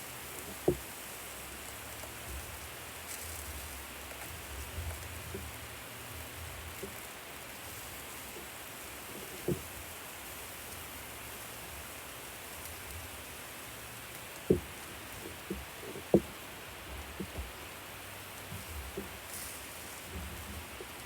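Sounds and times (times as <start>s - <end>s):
steady hiss: 0.0s - 21.0s
soft low knocks: 14.4s - 17.7s.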